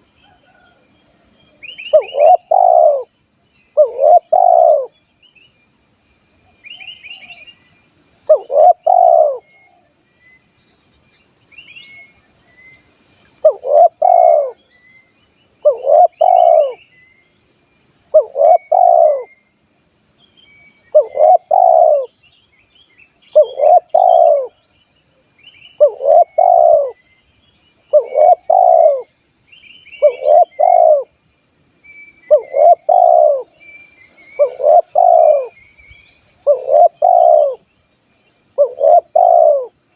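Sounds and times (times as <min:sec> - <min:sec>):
dove cooing: 0:01.9 - 0:03.1, 0:03.8 - 0:05.0, 0:08.3 - 0:09.9, 0:13.4 - 0:14.6, 0:15.6 - 0:16.8, 0:18.1 - 0:19.3, 0:20.9 - 0:22.2, 0:23.3 - 0:24.6, 0:25.8 - 0:27.0, 0:27.9 - 0:29.1, 0:30.0 - 0:31.1, 0:32.3 - 0:33.6, 0:34.2 - 0:35.6, 0:36.4 - 0:37.6, 0:38.6 - 0:39.8.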